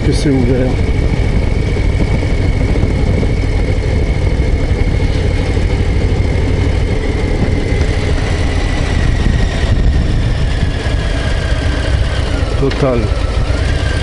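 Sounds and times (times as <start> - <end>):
motorcycle engine rumbling: 0.0 - 14.0.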